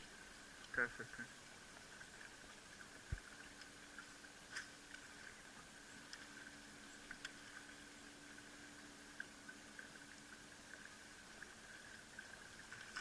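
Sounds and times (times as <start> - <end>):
steady high hum: 0.0 - 13.0
faint clicks: 1.8 - 5.4, 6.0 - 7.9.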